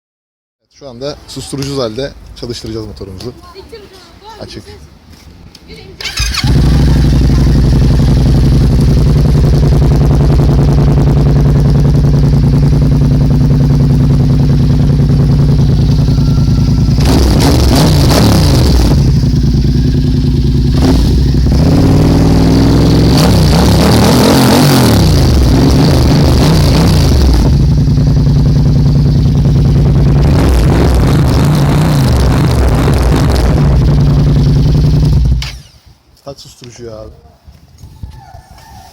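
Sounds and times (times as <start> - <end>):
motorcycle engine idling and revving: 6.0 - 36.0.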